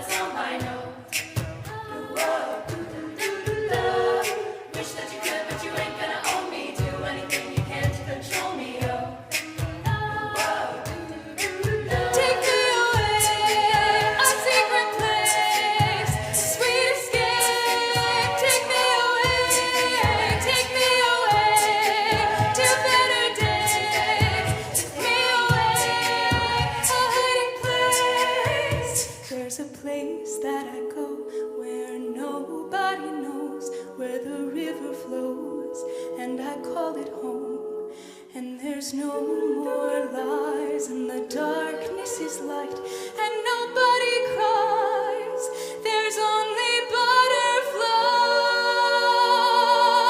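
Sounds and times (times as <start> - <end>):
vocal percussion beat: 0.0 - 29.8
a cappella vocal harmonies: 0.0 - 50.0.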